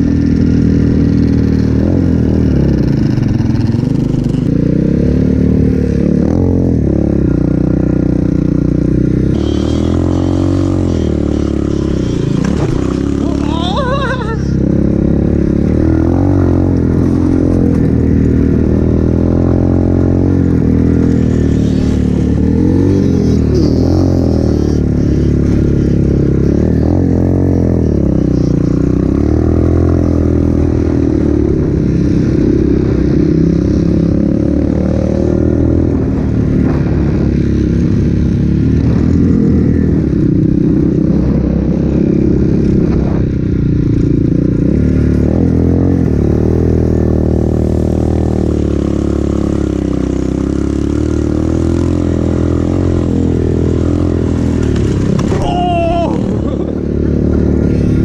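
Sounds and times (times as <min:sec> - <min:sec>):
pit bike engine revving: 0:00.0 - 0:58.0.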